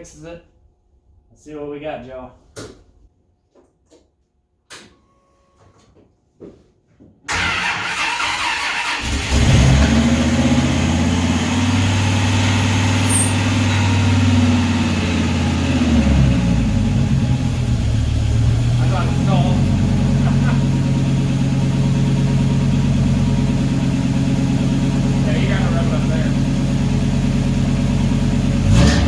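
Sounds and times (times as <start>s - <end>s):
truck engine running: 7.3s - 29.0s.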